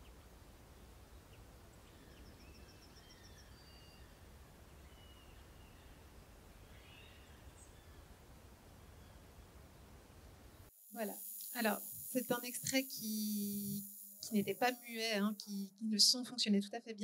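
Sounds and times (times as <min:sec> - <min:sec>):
distant birds calling: 0:00.0 - 0:10.7
low background hiss: 0:00.0 - 0:17.0.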